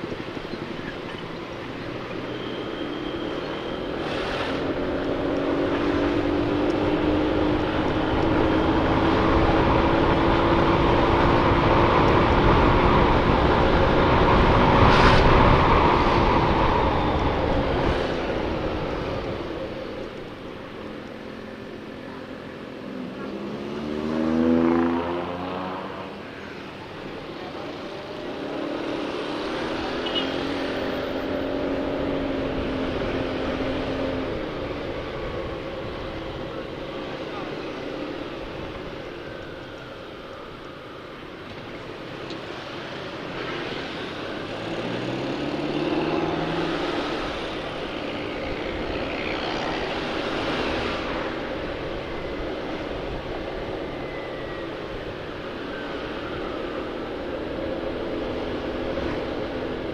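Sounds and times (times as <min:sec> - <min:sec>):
wind noise on microphone: 0:10.6 - 0:19.9.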